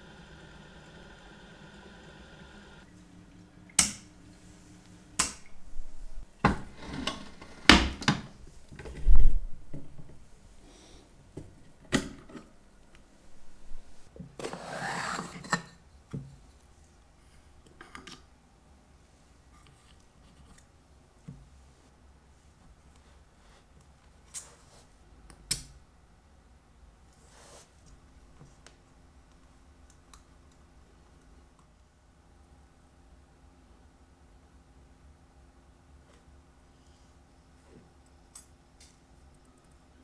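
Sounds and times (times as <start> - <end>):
cleaning machine humming: 0.0 - 5.2.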